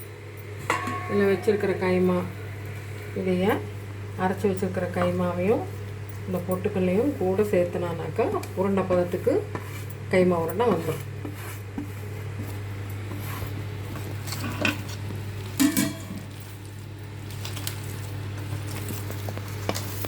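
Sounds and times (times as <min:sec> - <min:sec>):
steady low hum: 0:00.0 - 0:20.0
dishes and utensils clinking: 0:00.6 - 0:01.7, 0:15.6 - 0:16.4.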